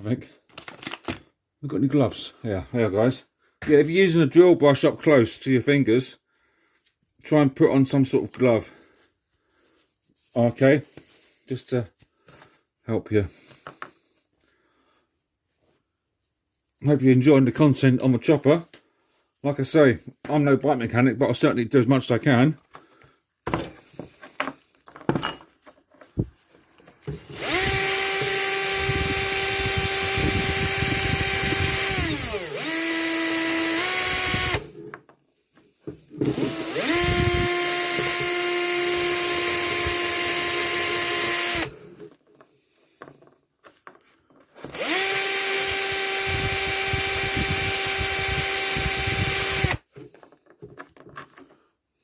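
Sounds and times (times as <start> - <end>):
power drill with brush scrubbing: 26.9 - 35.0, 35.8 - 43.2, 44.5 - 50.4.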